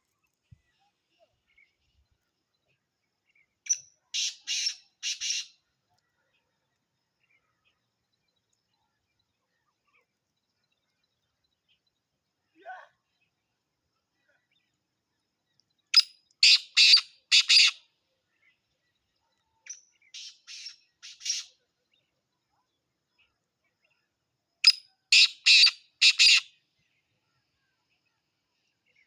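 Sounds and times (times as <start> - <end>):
bird harsh grating calls: 25.2 - 26.5.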